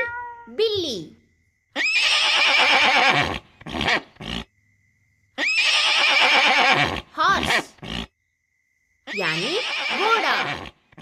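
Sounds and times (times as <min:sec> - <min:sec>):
horse whinnying: 0:01.8 - 0:04.5, 0:05.4 - 0:08.1, 0:09.1 - 0:10.8.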